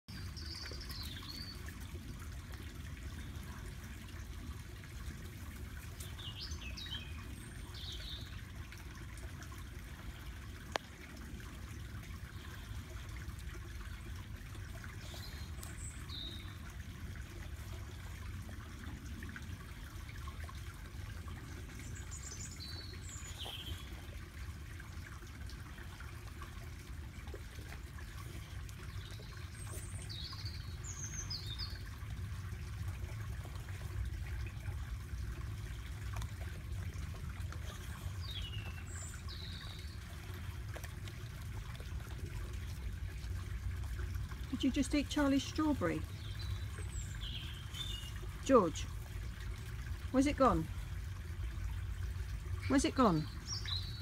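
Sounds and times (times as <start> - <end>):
small birds chirping: 14.9 - 16.7, 21.7 - 24.1, 28.0 - 32.0, 37.6 - 40.4, 44.4 - 48.9, 51.9 - 54.0.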